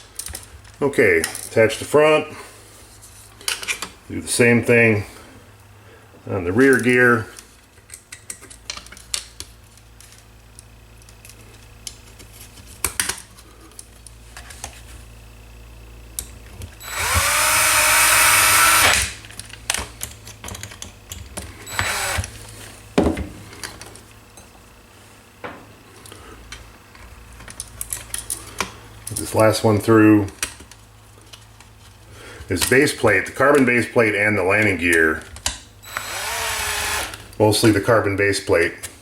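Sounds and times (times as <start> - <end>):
small clicks and knocks of parts: 0.0 - 1.6, 3.4 - 4.0, 6.7 - 14.8, 18.9 - 24.5, 25.4 - 29.4, 30.2 - 32.8, 34.5 - 36.2
power screwdriver spinning: 16.8 - 19.2, 21.6 - 22.4, 35.8 - 37.3.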